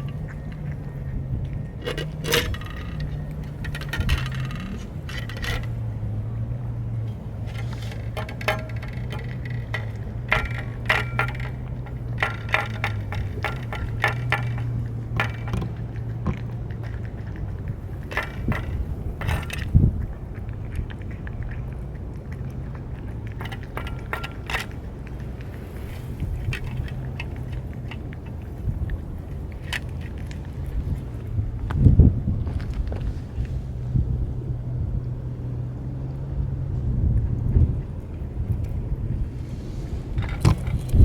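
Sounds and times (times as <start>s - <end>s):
dry cat food rattling in dish: 0.0s - 31.4s
steady low hum: 0.0s - 41.0s.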